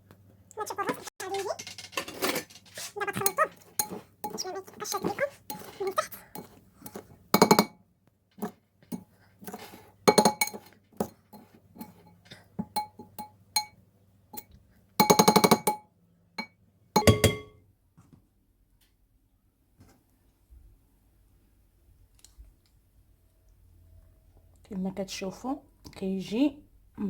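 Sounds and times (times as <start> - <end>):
metal utensil clinking on glass bowl: 1.3 - 7.7, 8.4 - 13.7, 17.0 - 17.5.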